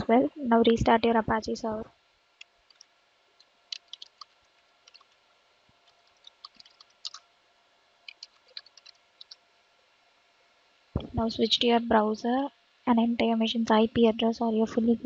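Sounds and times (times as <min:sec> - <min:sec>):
keyboard keys clicking: 0:02.7 - 0:02.9, 0:03.7 - 0:05.2, 0:05.8 - 0:07.2, 0:08.1 - 0:09.4.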